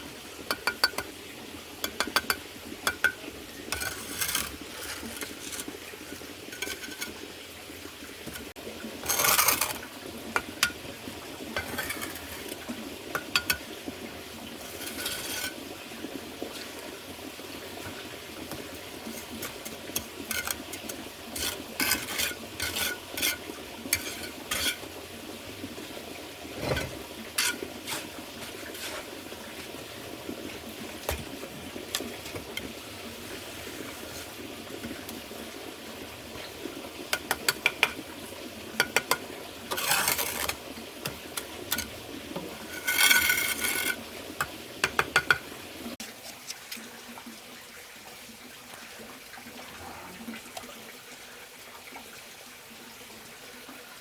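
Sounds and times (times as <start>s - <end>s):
hard tool clinking and scraping: 6.5s - 7.2s, 38.9s - 41.9s.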